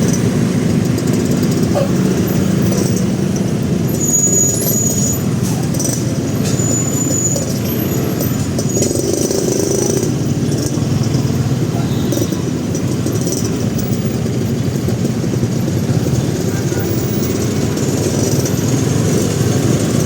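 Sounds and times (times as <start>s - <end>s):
city traffic: 0.0s - 20.0s
motorcycle engine running: 0.0s - 20.0s
brief high squeal: 3.9s - 5.8s, 6.4s - 9.1s.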